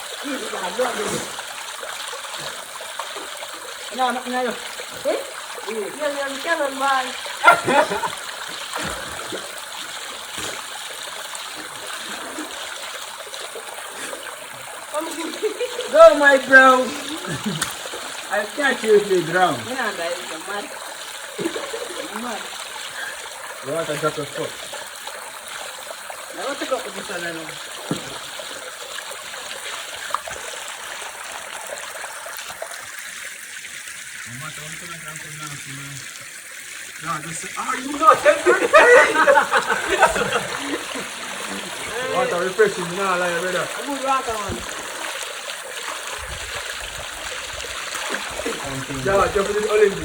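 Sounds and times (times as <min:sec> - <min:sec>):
river water running: 0:00.0 - 0:50.0
river water rushing: 0:37.0 - 0:50.0.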